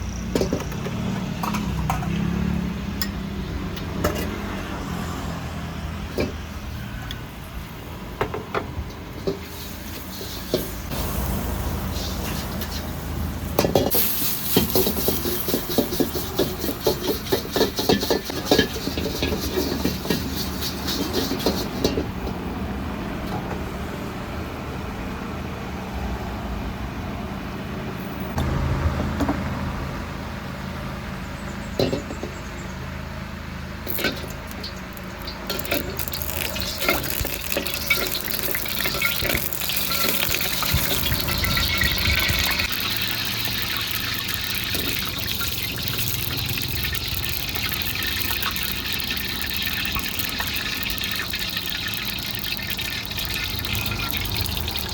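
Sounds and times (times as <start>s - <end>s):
utensils and cookware clattering: 0.3s - 2.4s, 13.5s - 22.4s, 33.9s - 54.9s
running water filling a vessel: 33.9s - 54.9s.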